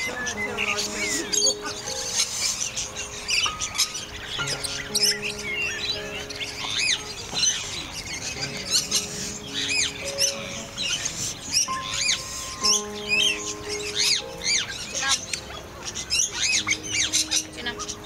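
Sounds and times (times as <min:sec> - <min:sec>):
birds chirping: 0:00.0 - 0:18.0
music with long held notes: 0:00.0 - 0:18.0.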